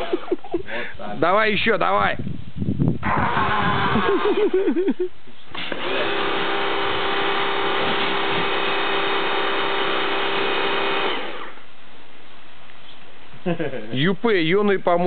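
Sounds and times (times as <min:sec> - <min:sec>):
pressure washer whining: 0:05.5 - 0:11.7.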